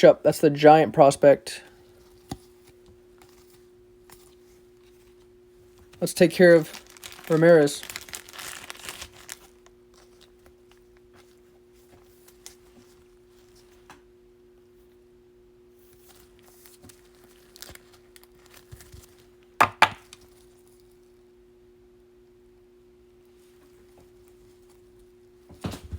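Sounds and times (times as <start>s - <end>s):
steady low hum: 0.0s - 25.9s
cards rustling and tapping: 1.8s - 14.0s, 15.9s - 20.5s.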